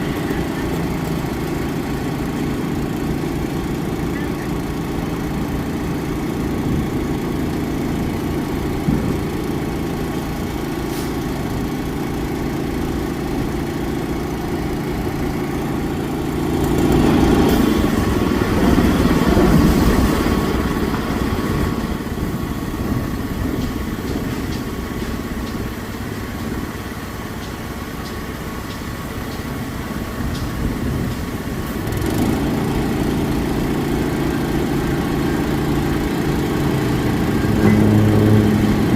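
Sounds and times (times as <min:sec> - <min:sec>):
diesel engines idling: 0:00.0 - 0:38.9
engine surge with rushing noise: 0:29.6 - 0:38.9.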